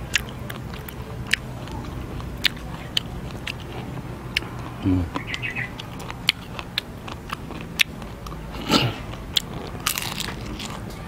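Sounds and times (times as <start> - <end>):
mouth chewing crunchy insects: 0.0 - 11.0.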